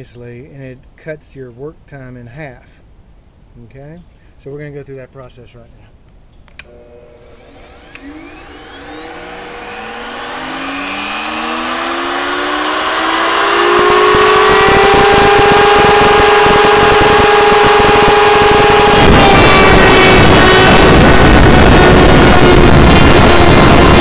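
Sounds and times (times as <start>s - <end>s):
electric routers whining: 6.5s - 24.0s
router switch click: 7.8s - 8.4s.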